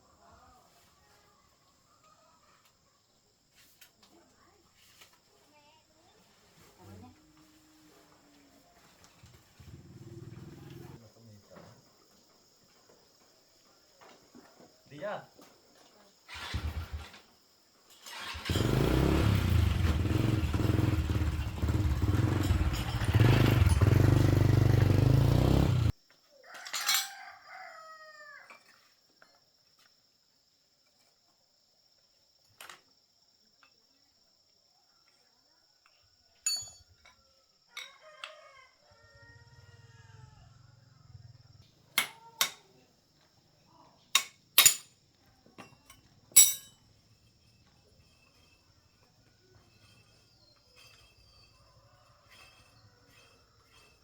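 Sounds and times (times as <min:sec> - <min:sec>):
motorbike engine running: 0:18.4 - 0:25.9
rooster crowing: 0:26.4 - 0:28.6, 0:37.3 - 0:41.5, 0:51.4 - 0:54.0.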